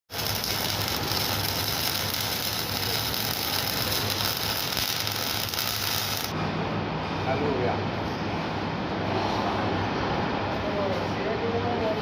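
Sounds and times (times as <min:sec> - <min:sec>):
arc welder hissing: 0:00.1 - 0:06.4.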